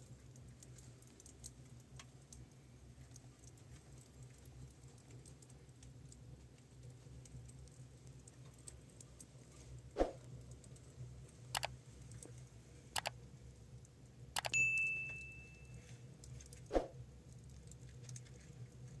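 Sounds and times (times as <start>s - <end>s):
low steady hum: 0.0s - 19.0s
high ring: 14.5s - 15.8s.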